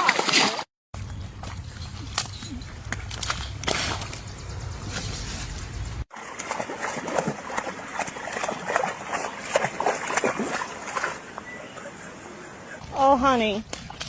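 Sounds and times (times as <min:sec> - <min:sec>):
dog splashing in water: 0:06.1 - 0:11.2.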